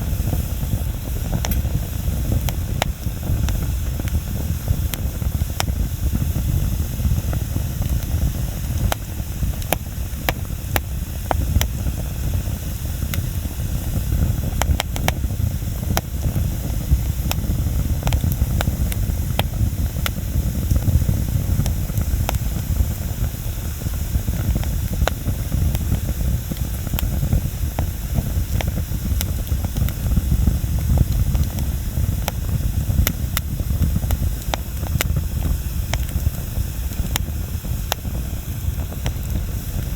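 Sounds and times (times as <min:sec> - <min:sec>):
flames rumbling: 0:00.0 - 0:39.9
wood crackling and popping: 0:00.0 - 0:39.9.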